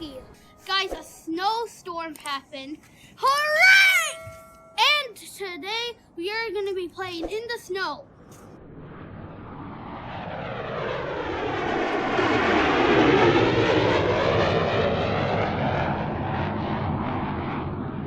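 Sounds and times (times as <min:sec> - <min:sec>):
airplane flying overhead: 0:00.0 - 0:00.8, 0:08.0 - 0:18.0.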